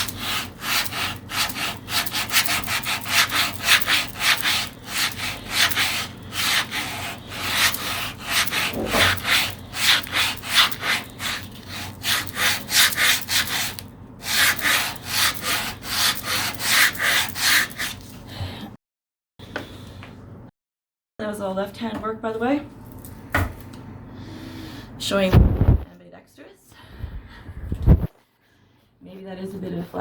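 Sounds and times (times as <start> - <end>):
sandpaper scraping wood: 0.0 - 18.0.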